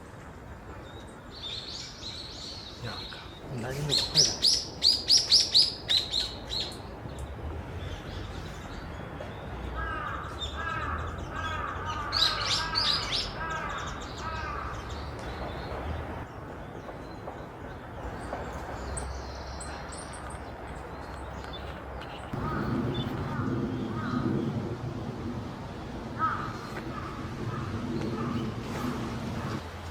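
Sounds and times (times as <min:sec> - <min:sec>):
repeated lower bird calls: 0:02.6 - 0:06.9.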